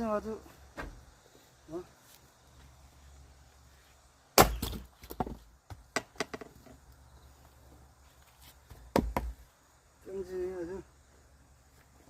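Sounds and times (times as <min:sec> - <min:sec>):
axe splitting log: 0:04.4 - 0:06.4
light wooden knocks: 0:05.0 - 0:06.8, 0:08.7 - 0:09.4.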